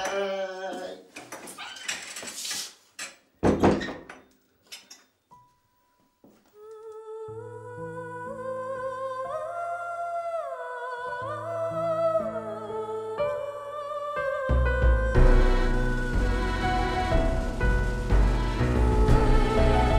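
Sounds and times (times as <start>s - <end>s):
slow orchestral film score: 7.0s - 19.9s.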